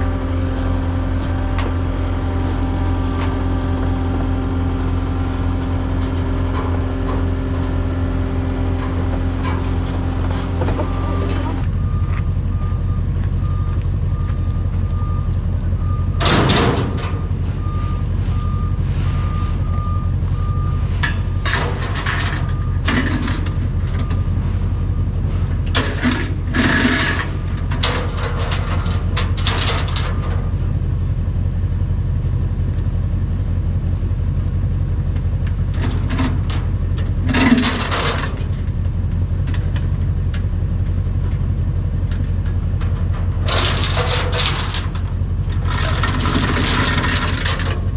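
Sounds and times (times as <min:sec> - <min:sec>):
diesel engine running: 0:00.0 - 0:47.9
metallic clanks and scrapes: 0:08.7 - 0:11.7, 0:13.0 - 0:30.6, 0:35.7 - 0:41.4, 0:42.1 - 0:47.9
backup alarm beeping: 0:10.8 - 0:20.9.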